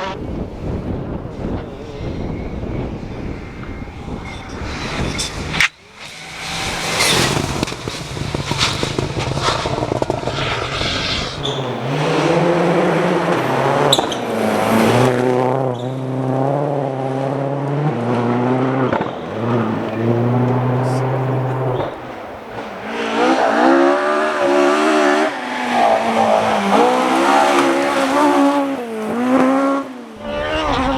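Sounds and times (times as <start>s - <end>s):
rally car engines at speed: 0.0s - 30.9s
engine revving through gear shifts: 17.0s - 29.9s.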